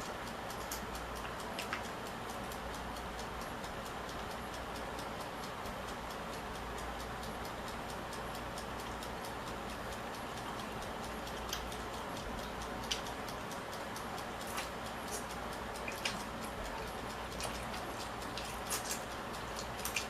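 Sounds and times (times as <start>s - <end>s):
rapid even ticking: 0.0s - 20.0s
clicks of eating food: 9.7s - 20.0s.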